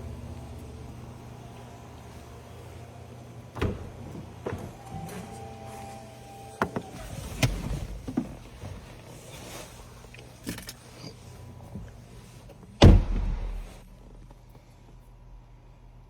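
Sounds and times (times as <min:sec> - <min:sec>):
loud heavy thump: 0:12.8 - 0:13.8.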